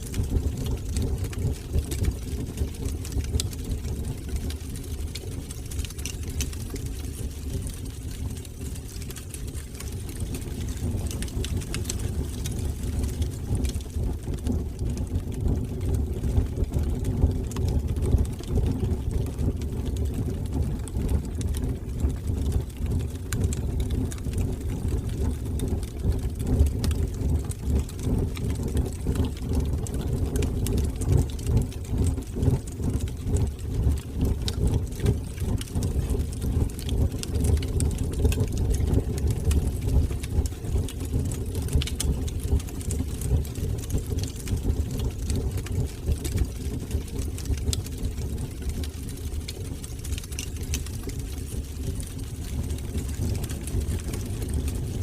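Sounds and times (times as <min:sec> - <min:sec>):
wood fire burning: 0:00.0 - 0:55.0.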